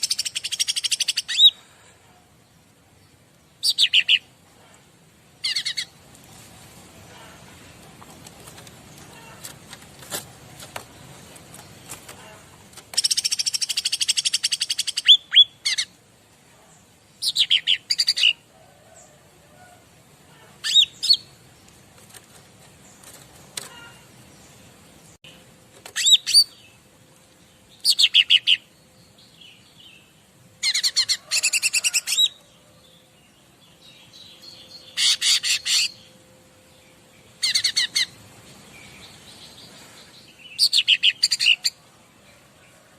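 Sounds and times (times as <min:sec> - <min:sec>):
songbird trilling: 0:30.6 - 0:32.4, 0:34.3 - 0:36.1, 0:37.4 - 0:38.2.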